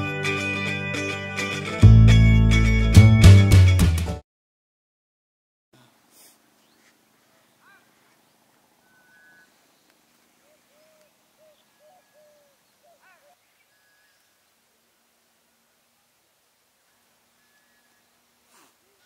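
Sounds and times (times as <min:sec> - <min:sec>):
faint bird calls: 0:05.8 - 0:15.0, 0:16.8 - 0:19.0
soft steady hiss: 0:05.8 - 0:19.0.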